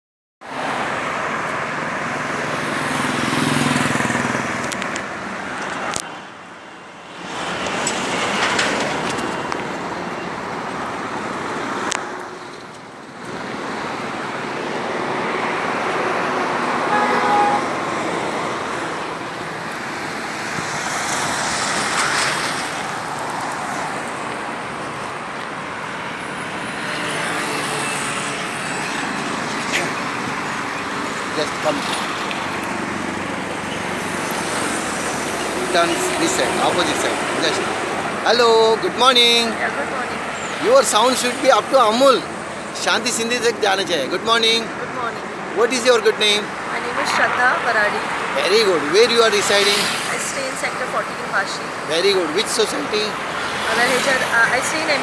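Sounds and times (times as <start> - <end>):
road traffic noise: 0.4 - 55.0
vehicle horn toot: 16.9 - 17.8.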